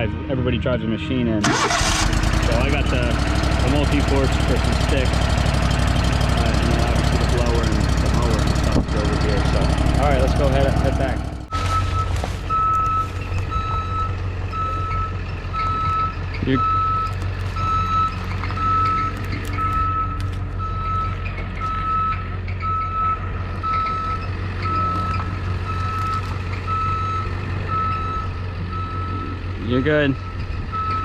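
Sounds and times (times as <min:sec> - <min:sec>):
low engine drone: 0:00.0 - 0:31.0
reverse alarm beeping: 0:11.5 - 0:31.0.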